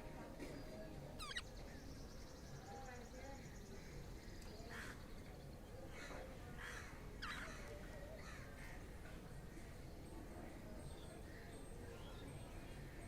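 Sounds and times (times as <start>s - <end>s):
budgerigars squawking: 1.2s - 1.4s.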